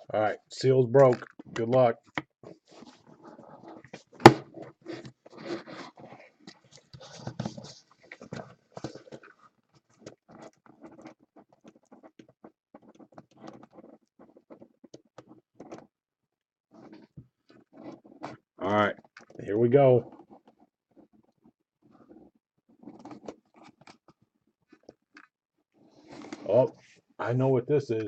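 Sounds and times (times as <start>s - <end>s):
cardboard box rustling: 2.5s - 9.4s.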